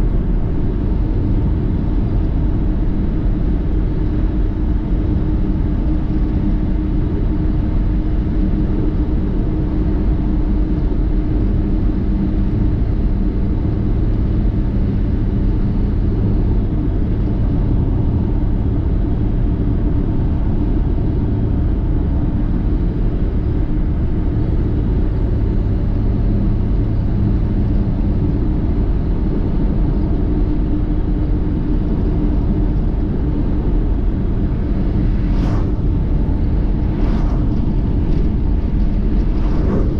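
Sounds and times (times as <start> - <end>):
vehicle driving rumble: 31.0 - 39.9.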